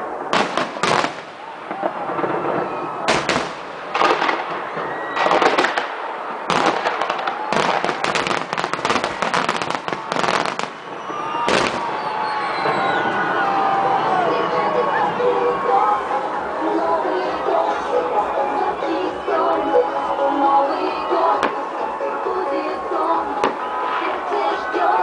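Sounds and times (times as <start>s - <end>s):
fireworks bangs and crackling: 0.0s - 13.8s.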